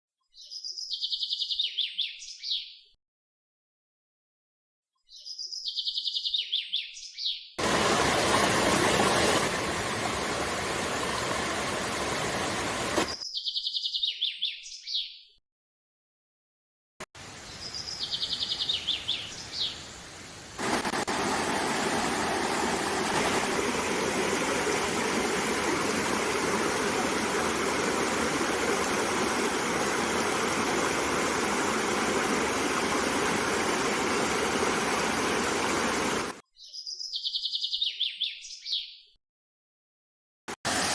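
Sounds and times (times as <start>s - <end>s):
stream water rushing: 7.6s - 13.2s, 17.2s - 36.4s, 40.7s - 40.9s.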